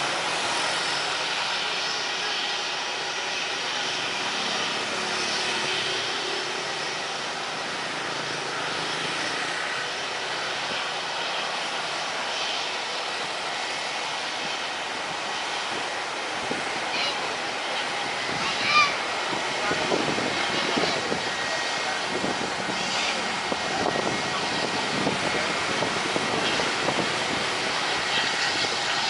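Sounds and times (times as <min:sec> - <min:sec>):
jet engines running: 0:00.0 - 0:29.0.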